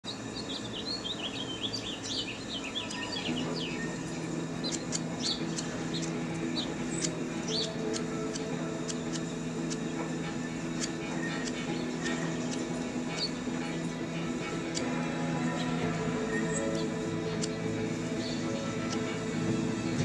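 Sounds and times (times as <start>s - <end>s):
small birds chirping: 0.0s - 20.0s
low sustained tones: 0.1s - 20.0s.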